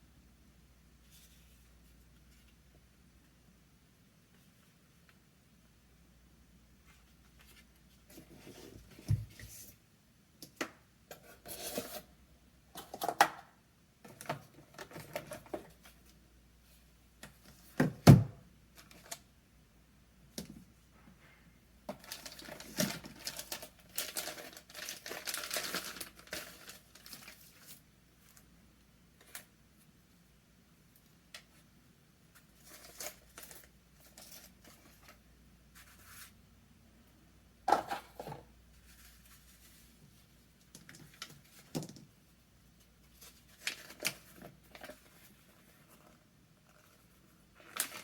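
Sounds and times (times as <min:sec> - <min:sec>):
packaging crinkling: 0:22.0 - 0:27.8
packaging rustling and tearing: 0:22.0 - 0:27.8, 0:47.6 - 0:48.0.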